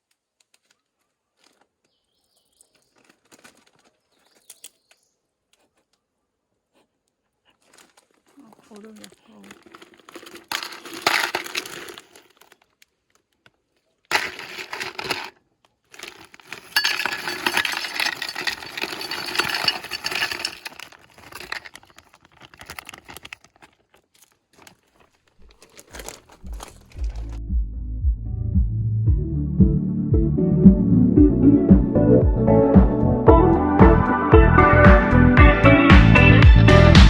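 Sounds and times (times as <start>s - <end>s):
ice cubes clattering and clinking: 7.6s - 12.8s, 14.1s - 27.4s.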